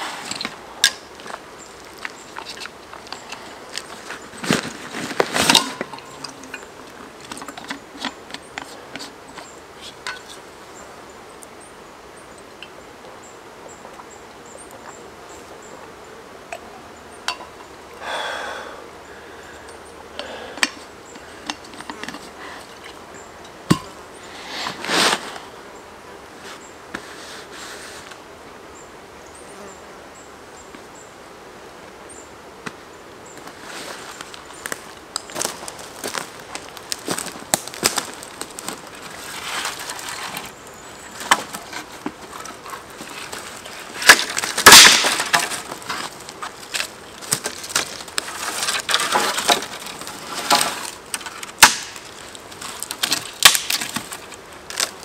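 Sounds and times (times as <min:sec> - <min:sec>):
rustling: 0:00.0 - 0:10.6, 0:23.7 - 0:25.5, 0:33.4 - 0:55.0
insects buzzing: 0:00.0 - 0:55.0.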